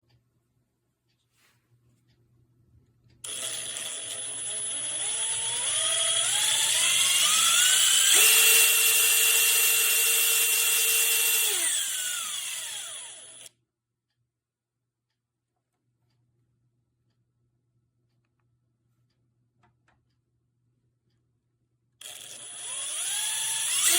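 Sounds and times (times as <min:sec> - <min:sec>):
impact driver motor whining: 0:03.3 - 0:13.5, 0:22.0 - 0:23.9.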